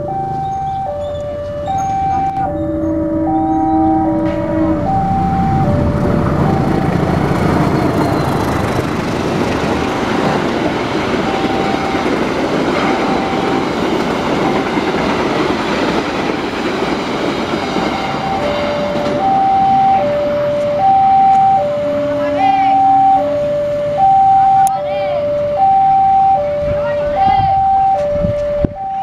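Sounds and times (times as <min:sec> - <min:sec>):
level-crossing two-tone chime: 0:00.0 - 0:07.0, 0:18.0 - 0:29.0
train wheels clattering on rail: 0:06.4 - 0:19.7.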